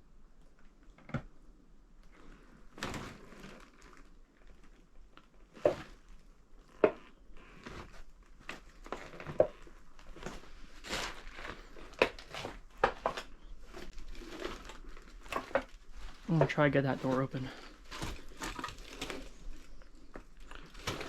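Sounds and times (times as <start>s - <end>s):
crinkling rustles: 2.0s - 21.0s
footsteps on cluttered floor: 7.6s - 21.0s.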